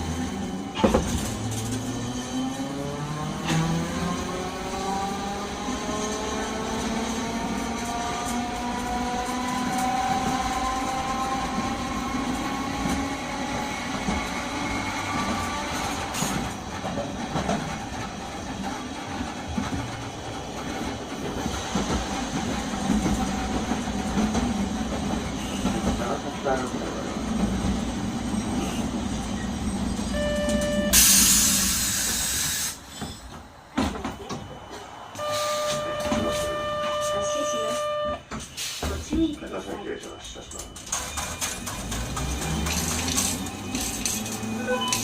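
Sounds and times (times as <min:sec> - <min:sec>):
streetcar motor and wheels rumbling: 0:00.0 - 0:45.0
tram running hum: 0:00.0 - 0:45.0
short electronic beep: 0:30.1 - 0:31.1.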